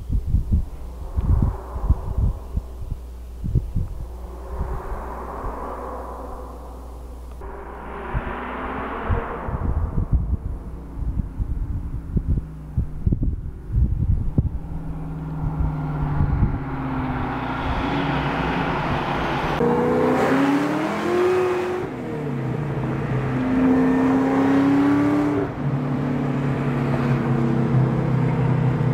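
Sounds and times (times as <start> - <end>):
car engine accelerating: 0.0 - 28.9.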